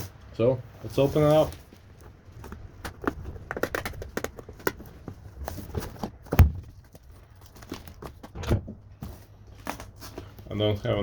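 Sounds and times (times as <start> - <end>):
cardboard box tapping and scraping: 2.0 - 8.4
cardboard box thump: 5.8 - 6.7.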